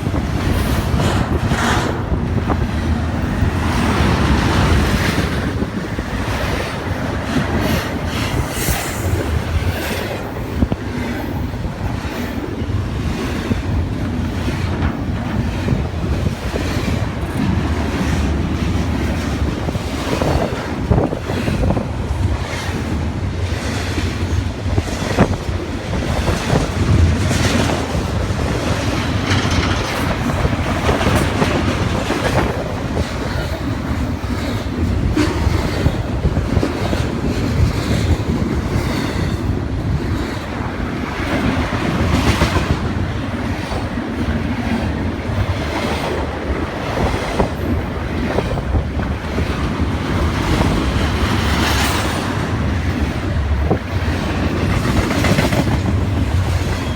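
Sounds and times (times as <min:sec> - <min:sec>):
freight train rumble: 0:00.0 - 0:56.9
train wheels clicking over rail joints: 0:00.0 - 0:56.9.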